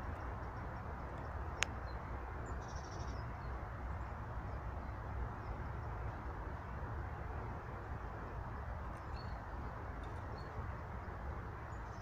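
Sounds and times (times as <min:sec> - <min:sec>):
songbird call: 0:00.0 - 0:03.6
low outdoor rumble: 0:00.0 - 0:12.0.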